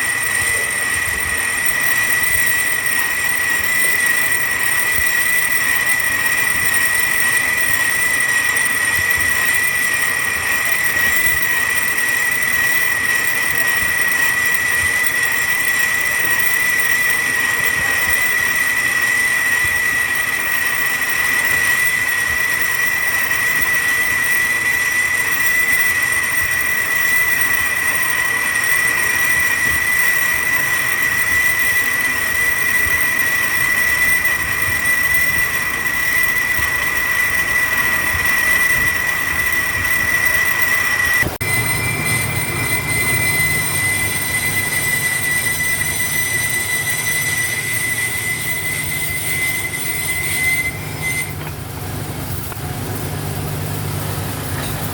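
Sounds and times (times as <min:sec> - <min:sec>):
high-pitched compressor whine: 0:00.0 - 0:54.9
engine running: 0:50.7 - 0:54.9.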